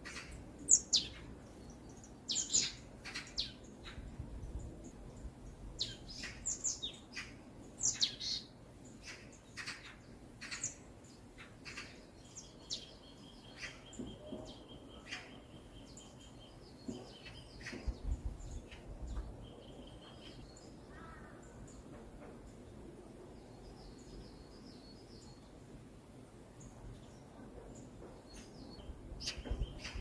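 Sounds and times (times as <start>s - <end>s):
wild birds chirping: 0.0s - 22.6s.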